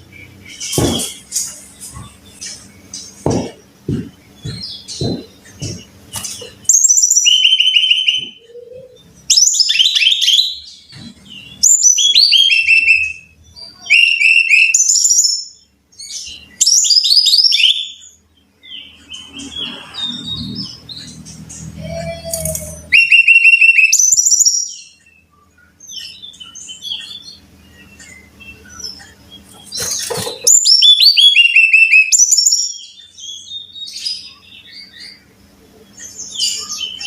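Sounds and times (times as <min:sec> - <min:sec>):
bird twittering: 0:00.1 - 0:15.6, 0:18.8 - 0:35.3
soft knocks: 0:03.2 - 0:06.6.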